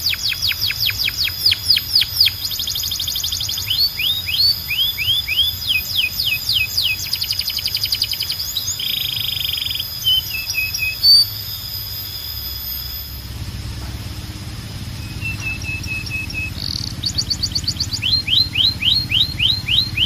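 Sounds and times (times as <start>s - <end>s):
canary singing: 0.0s - 20.0s
steady thin high tone: 5.2s - 20.0s.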